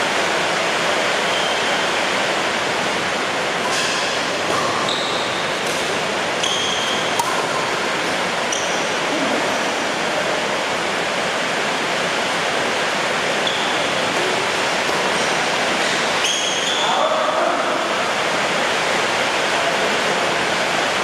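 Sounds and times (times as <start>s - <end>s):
brief high squeaks: 1.3s - 1.8s, 4.5s - 5.5s, 6.4s - 7.1s, 8.5s - 8.9s, 13.4s - 13.9s, 15.8s - 17.0s.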